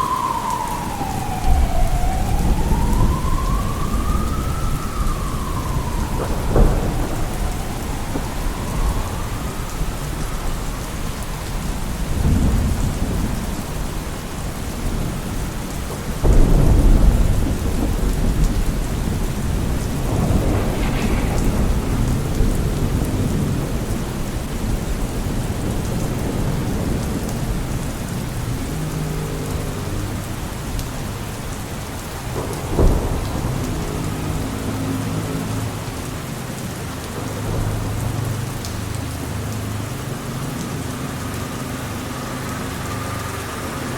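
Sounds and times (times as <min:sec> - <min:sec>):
siren wailing: 0:00.0 - 0:12.0, 0:16.4 - 0:23.9
deep thunder rumbles: 0:00.0 - 0:43.9
steady rain: 0:00.0 - 0:43.9.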